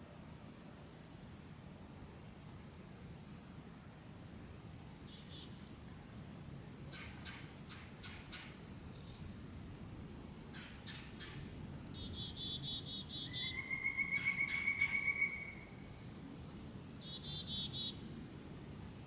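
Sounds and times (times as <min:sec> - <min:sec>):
chickadee calls: 0:10.5 - 0:16.2, 0:16.9 - 0:18.0.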